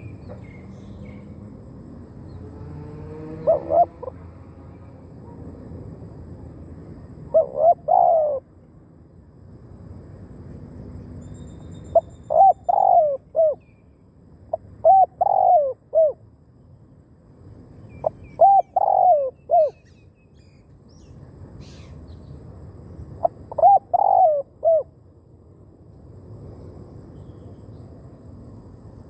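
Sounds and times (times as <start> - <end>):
small bird chirping: 0.0 - 1.4, 17.8 - 22.4
dove cooing: 3.3 - 4.2, 7.3 - 8.5, 12.3 - 13.6, 14.5 - 16.2, 18.0 - 19.9, 23.2 - 24.9.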